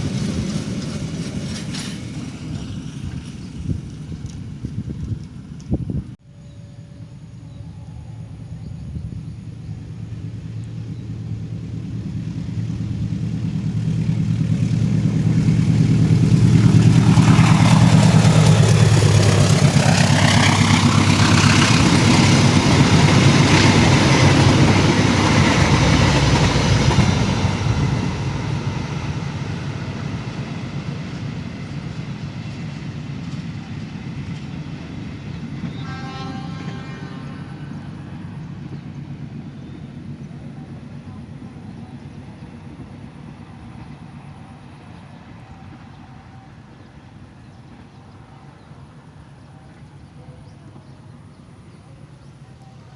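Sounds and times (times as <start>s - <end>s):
train wheels rumbling on rails: 0.0s - 6.2s, 7.1s - 52.9s
diesel locomotive engine hum: 0.0s - 52.9s
faint multi-pitched tone: 6.3s - 9.0s.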